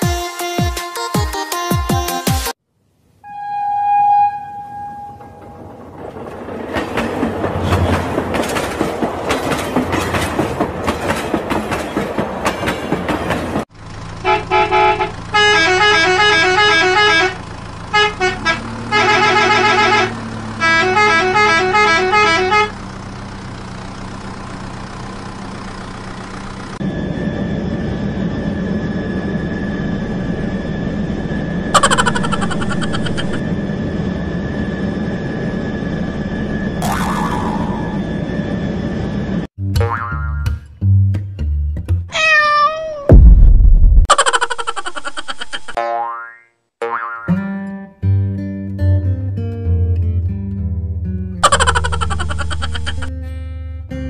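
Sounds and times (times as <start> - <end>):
electronic toy horn toots: 14.2 - 22.8.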